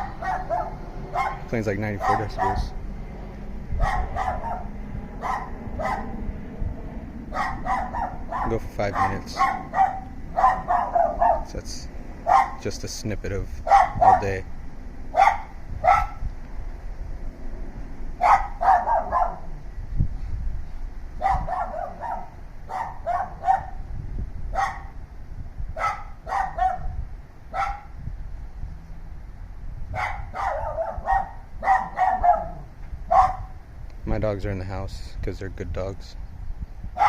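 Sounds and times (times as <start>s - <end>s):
dogs barking: 0.0s - 2.8s, 3.7s - 6.2s, 7.3s - 12.7s, 13.6s - 14.4s, 15.1s - 16.2s, 18.2s - 19.6s, 21.2s - 23.9s, 24.5s - 25.0s, 25.8s - 28.0s, 29.9s - 33.6s.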